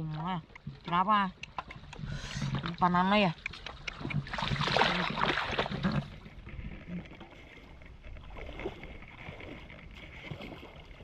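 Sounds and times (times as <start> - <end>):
flowing water rushing: 0.0 - 11.0
water splashing loudly: 3.4 - 6.1.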